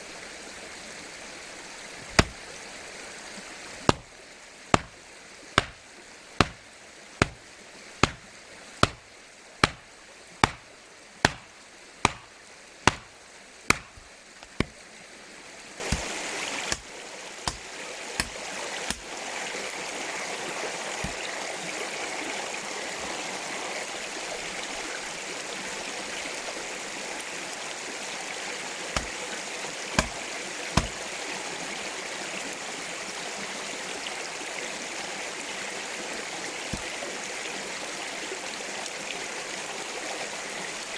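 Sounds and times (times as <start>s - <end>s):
mountain stream flowing: 0.0s - 40.9s
sharp knocks: 2.0s - 2.4s, 3.9s - 4.1s, 4.8s - 5.0s, 5.6s - 5.8s, 6.4s - 6.6s, 7.2s - 7.4s, 8.0s - 8.2s, 8.8s - 9.0s, 9.6s - 14.7s, 16.7s - 16.9s, 18.2s - 19.0s, 29.0s - 29.2s, 30.0s - 30.2s, 30.8s - 31.0s.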